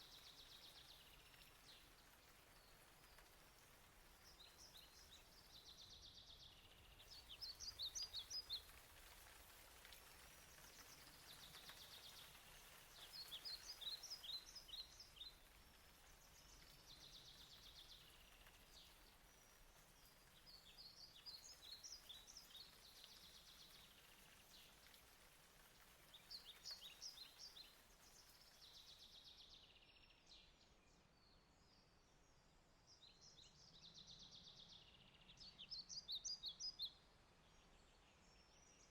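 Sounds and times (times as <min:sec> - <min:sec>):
rain hiss: 0:00.0 - 0:29.6
songbird singing high chirps: 0:32.9 - 0:38.9.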